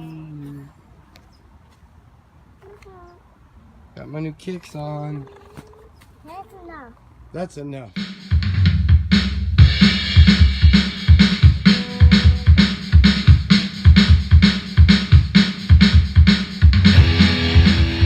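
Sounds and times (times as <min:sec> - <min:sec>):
electronic drum beat and heavy bass: 0:08.0 - 0:18.0.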